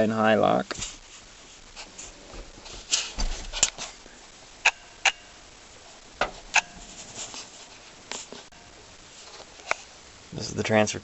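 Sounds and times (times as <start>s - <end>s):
sharp clicks and knocks: 4.6s - 5.3s, 6.2s - 6.8s
ringing clicks: 4.6s - 5.4s.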